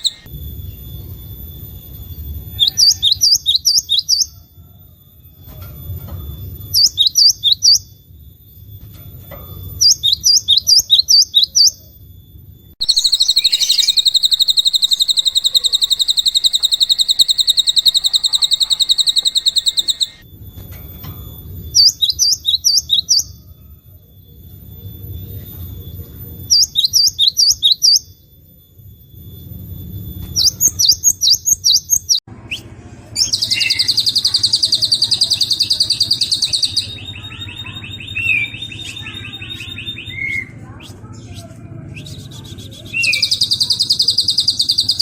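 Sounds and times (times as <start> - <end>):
songbird buzzy trill: 0.0 - 4.4, 5.1 - 45.0
songbird high falling notes: 12.8 - 20.2.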